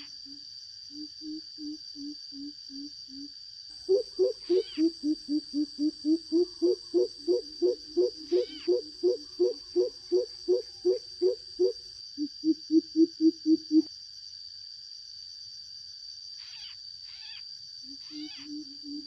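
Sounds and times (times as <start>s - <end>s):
coucal deep hollow hoots: 0.9s - 13.9s, 18.0s - 19.0s.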